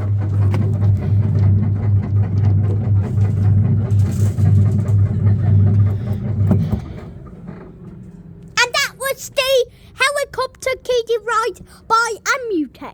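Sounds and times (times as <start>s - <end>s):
electric motor humming: 0.0s - 8.6s.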